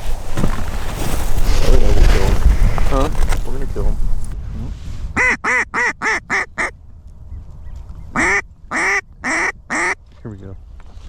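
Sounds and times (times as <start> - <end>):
duck call quacks: 5.2 - 6.7, 8.2 - 10.0.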